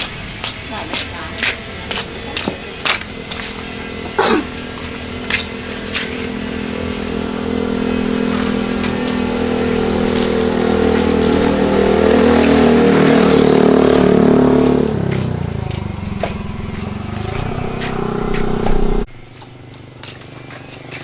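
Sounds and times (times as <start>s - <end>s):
engine revving up: 0.0s - 19.1s.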